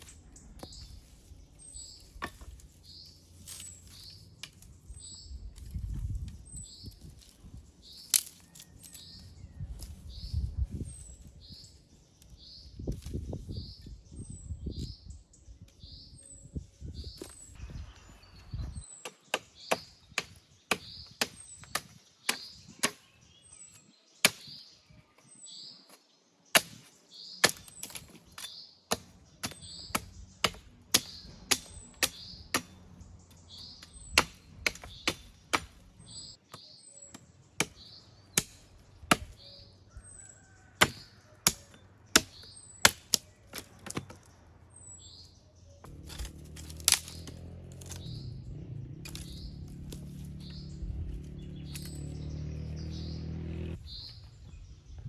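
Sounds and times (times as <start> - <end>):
small bird chirping: 0.0 - 43.6
sharp chopping knocks: 26.6 - 28.1, 34.1 - 35.8, 38.4 - 39.4
low steady rumble: 45.9 - 55.0.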